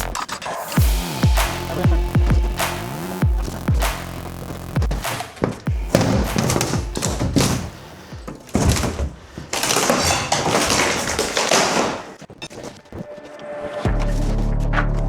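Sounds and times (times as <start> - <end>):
demolition knocks and thuds: 1.7 - 12.7
rattling crash of debris: 5.0 - 12.2.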